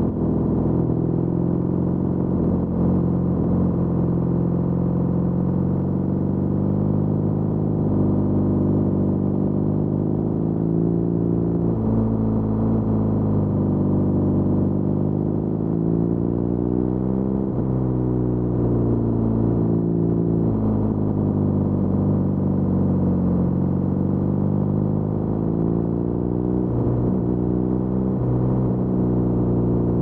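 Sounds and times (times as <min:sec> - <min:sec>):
motorcycle engine accelerating and shifting: 0:00.0 - 0:30.0.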